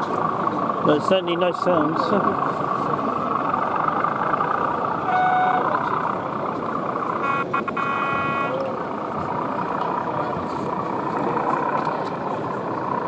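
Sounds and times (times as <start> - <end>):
model train horn toots: 5.0 - 5.8.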